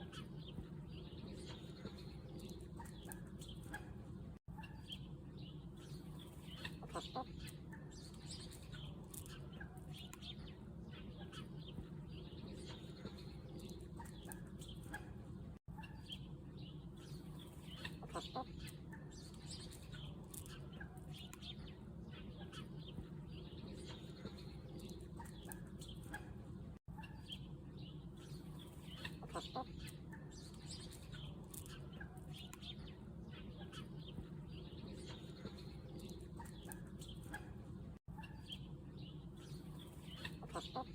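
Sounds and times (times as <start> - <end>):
chickens clucking: 0.0 - 5.1, 6.1 - 10.3, 11.0 - 16.3, 17.3 - 21.5, 28.2 - 38.7, 39.4 - 40.9.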